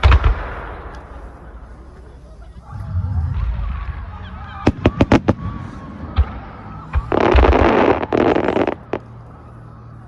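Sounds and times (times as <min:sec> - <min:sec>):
fireworks bangs: 0:04.6 - 0:09.1
fireworks crackling: 0:04.6 - 0:09.4.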